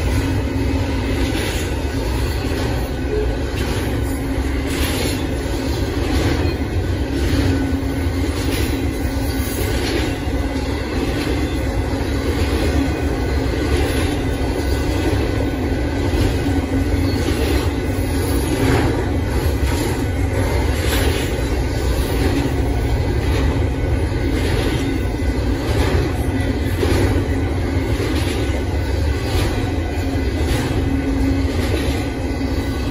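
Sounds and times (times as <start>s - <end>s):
freight train wheels rumbling: 0.0s - 32.9s
wheel clacks on rail: 0.0s - 32.9s.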